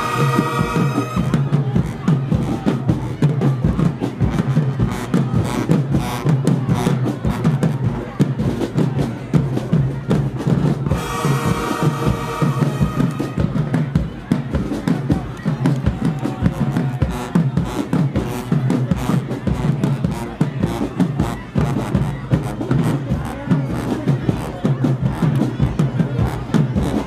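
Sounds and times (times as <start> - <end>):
horns holding chords: 0.0 - 2.0, 10.9 - 14.3
marching drumline beat: 0.0 - 27.0.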